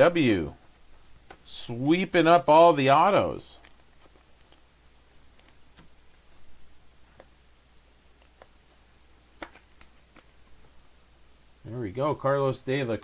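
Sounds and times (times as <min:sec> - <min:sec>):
cards clicking and tapping: 0:09.4 - 0:10.6.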